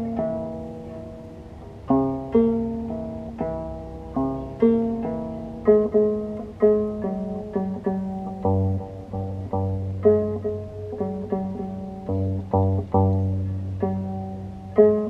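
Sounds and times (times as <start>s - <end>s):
plucked bicycle wheel harp: 0.0s - 15.0s.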